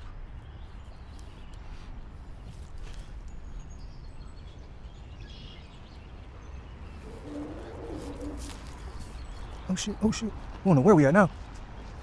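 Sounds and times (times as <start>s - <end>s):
faint bird chirps: 3.2s - 10.3s
low outdoor rumble: 6.1s - 12.0s.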